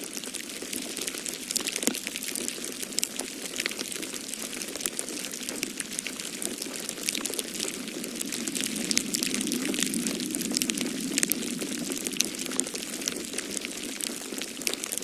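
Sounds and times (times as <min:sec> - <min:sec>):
wood fire crackling and popping: 0:00.1 - 0:15.0
snowstorm wind rushing: 0:06.1 - 0:14.0.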